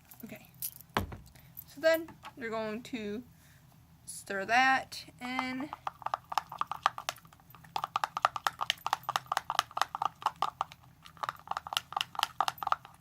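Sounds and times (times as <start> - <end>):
utensil stirring sticky slime: 5.2 - 13.0.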